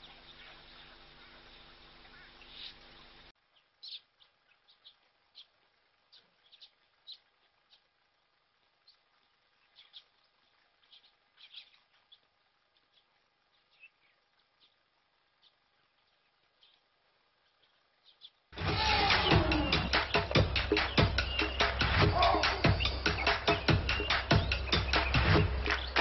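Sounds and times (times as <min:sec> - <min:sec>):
background hiss: 0:00.0 - 0:26.0
bird chirps and whistles: 0:18.7 - 0:26.0.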